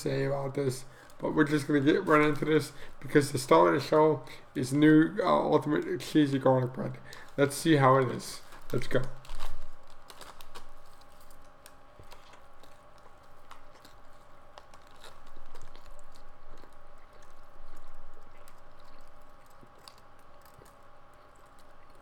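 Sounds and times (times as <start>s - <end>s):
chewing with small crunches: 0.0s - 22.0s.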